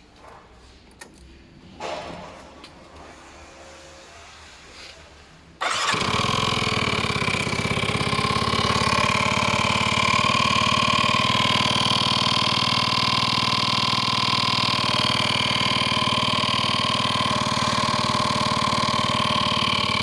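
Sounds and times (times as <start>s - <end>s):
scooter engine starting and idling: 5.6s - 20.0s.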